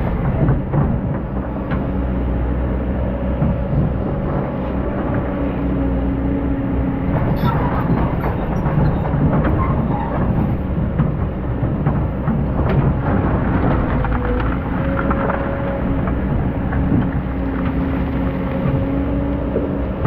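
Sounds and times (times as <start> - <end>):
machine clanks and knocks: 0.0 - 2.0, 7.0 - 19.1
excavator diesel engine running: 0.0 - 20.0.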